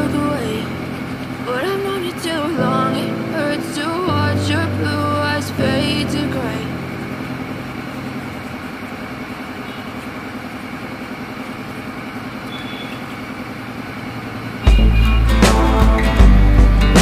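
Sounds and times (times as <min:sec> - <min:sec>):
small engine running: 0:06.4 - 0:15.6.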